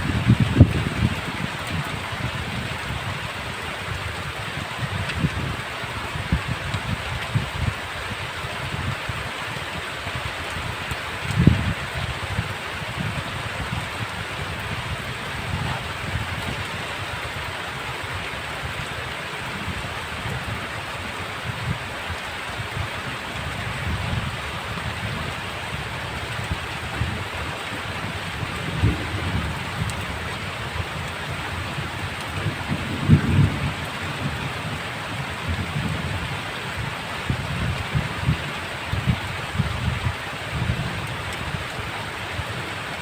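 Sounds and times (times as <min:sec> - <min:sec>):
thunder rumbling: 0:00.0 - 0:03.0, 0:23.8 - 0:41.0
heavy rain: 0:00.0 - 0:43.0.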